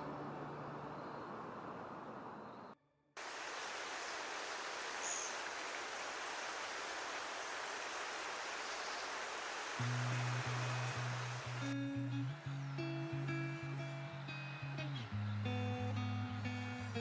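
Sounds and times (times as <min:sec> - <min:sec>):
flowing water rushing: 0:03.2 - 0:11.8.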